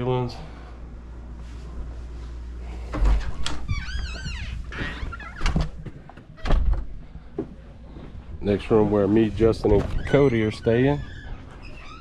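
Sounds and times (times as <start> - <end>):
high wavering door squeak: 3.6 - 5.6, 9.7 - 12.0.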